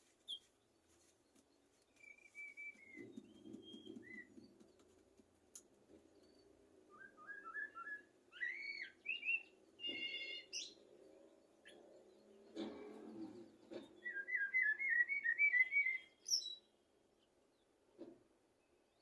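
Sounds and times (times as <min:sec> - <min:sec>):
blackbird singing: 0:01.9 - 0:04.8, 0:06.9 - 0:10.9, 0:11.6 - 0:16.7.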